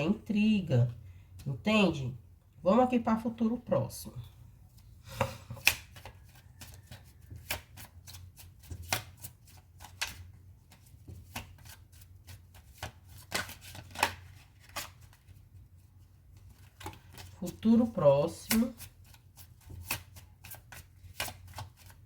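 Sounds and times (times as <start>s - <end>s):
cards being shuffled: 5.5s - 15.5s, 16.3s - 17.5s, 18.3s - 22.0s.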